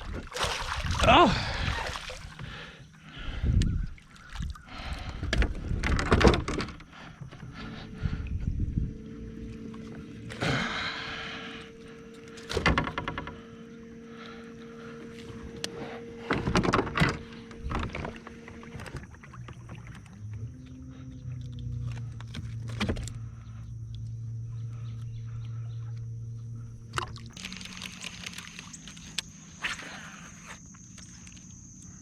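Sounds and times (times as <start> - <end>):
electric motor hum: 7.2 - 29.6.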